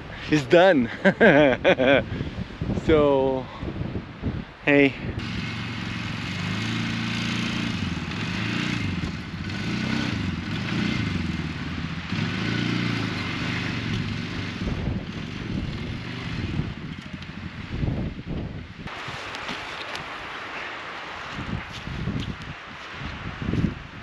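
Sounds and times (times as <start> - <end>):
engine running under varying load: 5.2 - 18.2.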